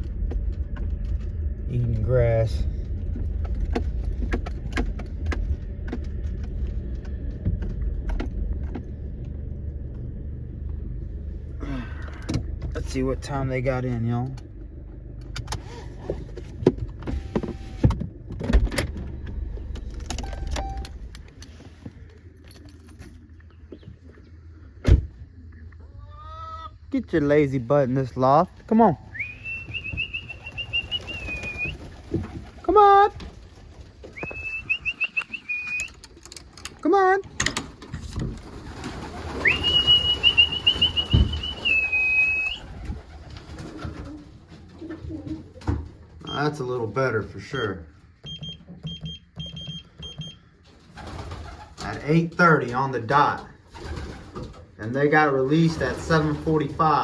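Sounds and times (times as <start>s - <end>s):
low steady rumble: 0.0s - 35.4s
sharp handling clicks and knocks: 3.1s - 10.0s, 35.7s - 38.4s
person whistling with a trill: 29.2s - 31.7s, 34.2s - 36.0s, 39.5s - 42.6s.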